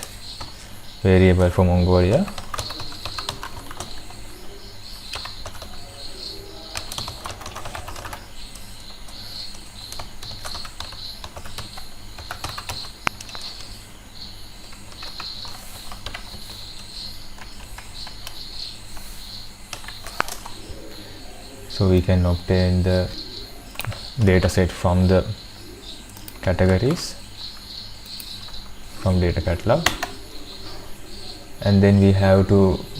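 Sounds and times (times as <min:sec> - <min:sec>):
typing on computer keyboard: 0:02.2 - 0:04.1, 0:05.1 - 0:05.8, 0:06.7 - 0:08.8, 0:09.5 - 0:13.7, 0:14.7 - 0:18.4, 0:19.7 - 0:20.6.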